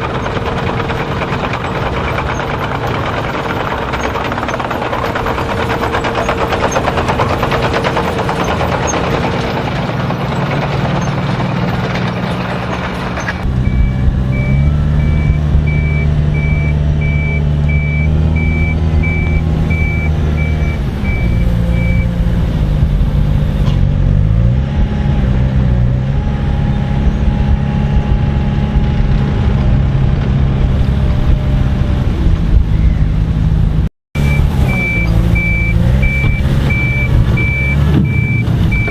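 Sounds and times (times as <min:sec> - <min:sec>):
diesel engine: 0:00.0 - 0:38.9
heavy construction machinery: 0:00.0 - 0:38.9
reversing alarm beeping: 0:13.5 - 0:22.2, 0:34.2 - 0:38.9.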